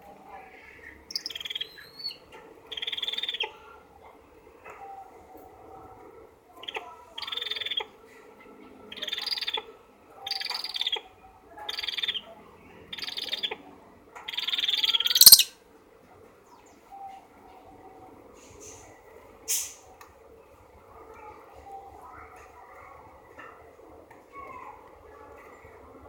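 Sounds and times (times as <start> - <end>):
eagle calling harshly: 14.9 - 15.5.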